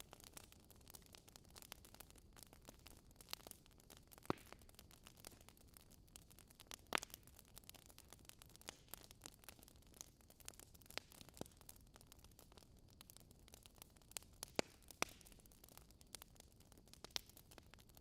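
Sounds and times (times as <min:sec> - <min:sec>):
fire crackling: 0:00.0 - 0:18.0.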